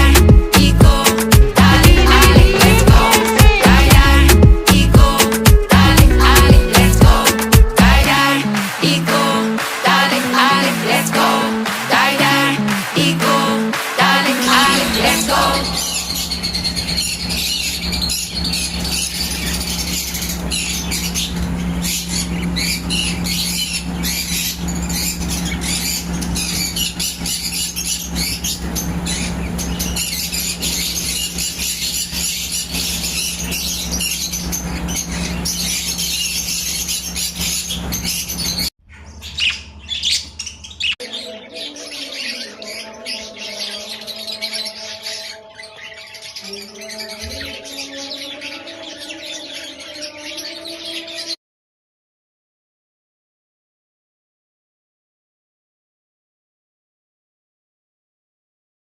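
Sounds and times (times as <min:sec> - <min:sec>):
budgerigars chirping and chattering: 0:00.0 - 0:08.2, 0:13.2 - 0:51.4
steady held tones: 0:00.0 - 0:08.2, 0:09.0 - 0:18.4
steady low hum: 0:00.0 - 0:40.9.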